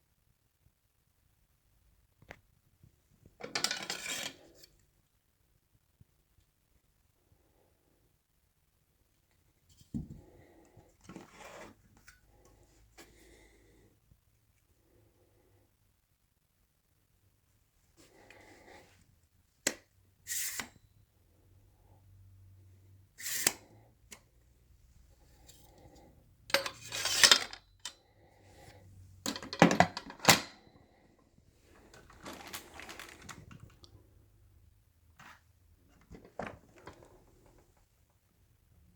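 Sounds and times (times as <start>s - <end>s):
vacuum parts clicking and clattering: 3.4s - 4.4s, 26.5s - 28.0s, 29.2s - 30.8s, 31.7s - 33.9s, 36.0s - 37.6s.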